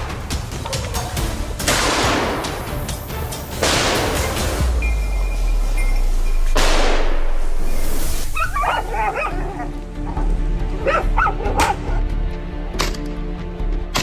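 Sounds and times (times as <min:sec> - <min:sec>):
background music: 0:00.0 - 0:14.0
sharp bang: 0:06.4 - 0:07.6
dogs barking and yelping: 0:08.3 - 0:12.1.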